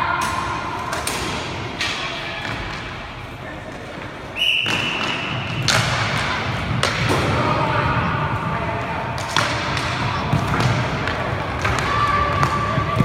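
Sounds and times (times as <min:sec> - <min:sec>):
referee's whistle: 0:04.4 - 0:05.5
sticks and puck knocking: 0:09.2 - 0:13.0.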